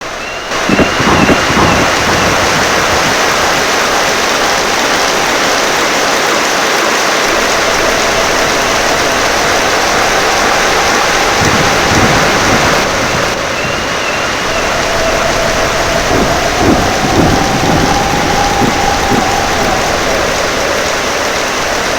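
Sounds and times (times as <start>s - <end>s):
heavy rain hissing: 0.0s - 21.9s.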